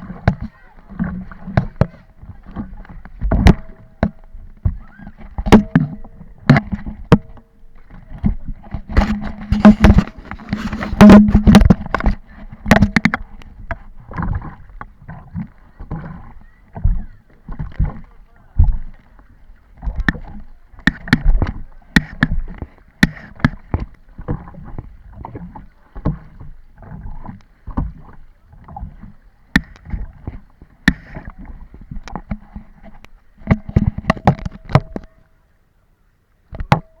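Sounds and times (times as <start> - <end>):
paddle splashing water: 0.0 - 37.0
sharp knocks: 5.4 - 7.4, 8.8 - 13.2.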